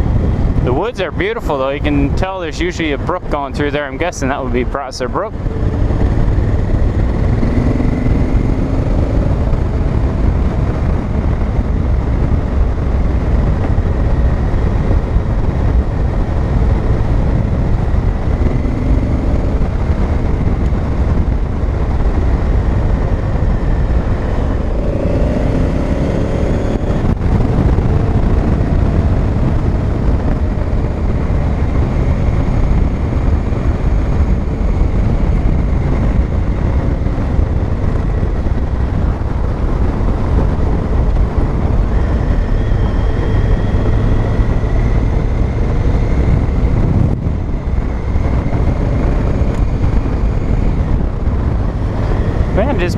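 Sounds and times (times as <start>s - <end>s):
motorcycle engine running: 0.0s - 52.9s
wind and road noise: 0.0s - 52.9s.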